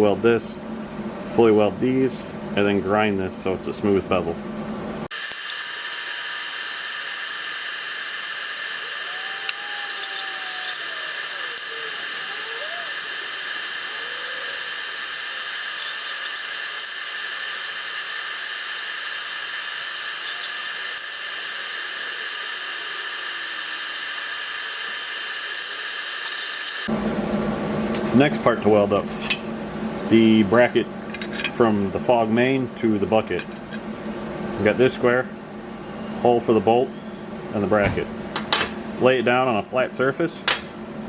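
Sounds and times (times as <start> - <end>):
arc welding sizzling hiss: 5.1 - 26.9.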